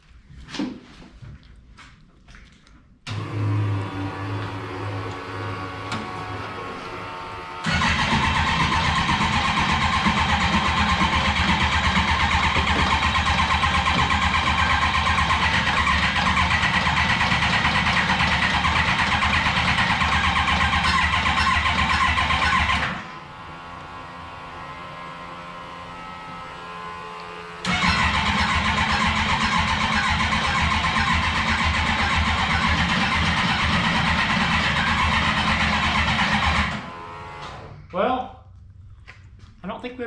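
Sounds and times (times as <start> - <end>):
engine cranking on starter: 3.1 - 23.2, 27.6 - 37.7.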